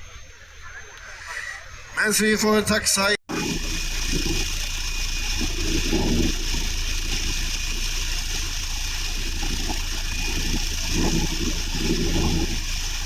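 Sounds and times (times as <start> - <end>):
distant aircraft engine running: 3.3 - 13.0.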